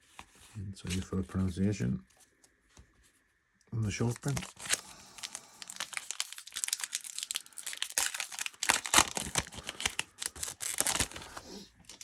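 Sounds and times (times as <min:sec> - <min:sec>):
wrappers crinkling: 0:04.0 - 0:12.0.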